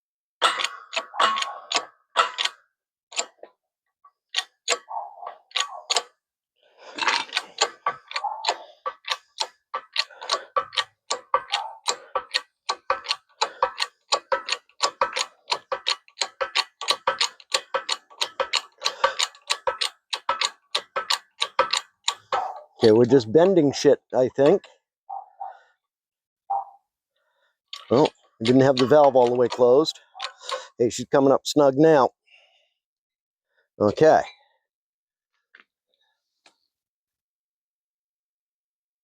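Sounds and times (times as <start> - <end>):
sharp metallic clicks from tools: 0.4 - 3.5, 5.5 - 6.1, 7.0 - 23.6, 27.8 - 30.7.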